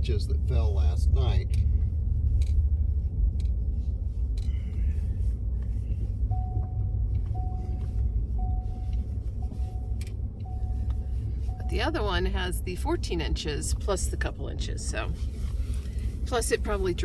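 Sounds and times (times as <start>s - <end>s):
engine and road rumble: 0.0s - 17.0s
short beeps: 6.3s - 10.9s, 11.5s - 12.1s.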